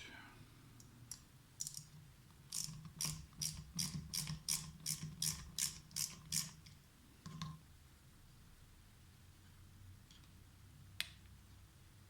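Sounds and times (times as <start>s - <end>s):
hand ratchet clicking: 2.5s - 6.6s.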